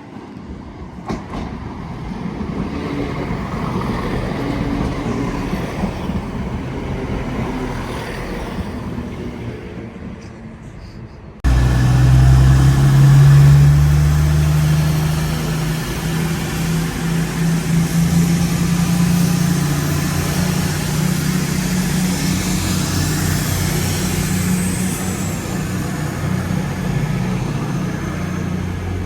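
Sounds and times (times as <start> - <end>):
diesel train engine droning: 11.4 - 29.0.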